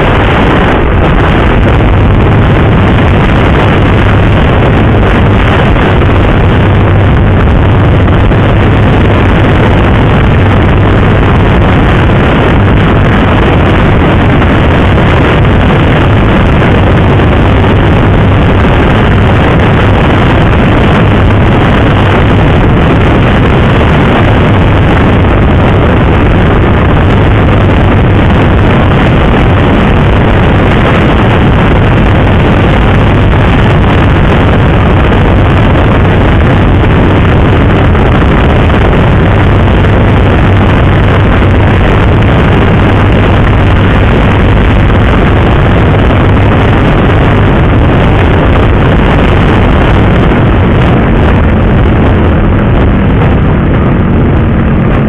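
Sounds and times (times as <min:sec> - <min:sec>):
wind rushing over microphone: 0:00.0 - 0:55.0
motorcycle engine cruising: 0:48.1 - 0:55.0.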